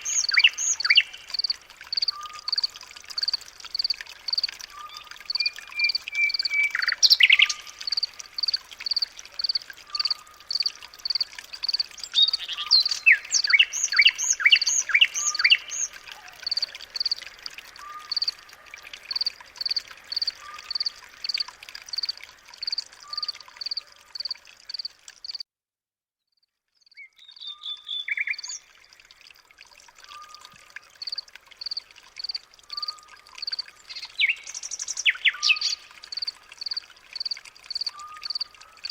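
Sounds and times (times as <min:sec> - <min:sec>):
birds singing and calling: 0:00.0 - 0:17.2, 0:27.0 - 0:28.7, 0:30.1 - 0:38.9.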